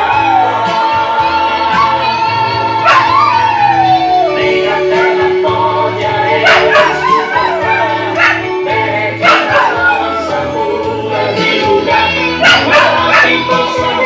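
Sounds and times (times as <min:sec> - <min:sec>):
dog howling: 0:00.0 - 0:05.5, 0:06.4 - 0:08.6, 0:09.2 - 0:10.7, 0:12.4 - 0:13.6
gospel hymn music: 0:00.0 - 0:14.0.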